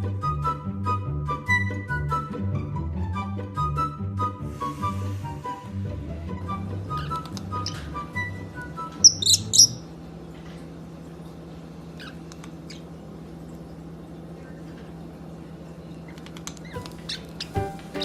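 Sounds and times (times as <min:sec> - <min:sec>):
low steady hum: 0:02.1 - 0:18.0
pet bird chirping: 0:06.9 - 0:09.9, 0:12.0 - 0:12.9, 0:15.9 - 0:18.0.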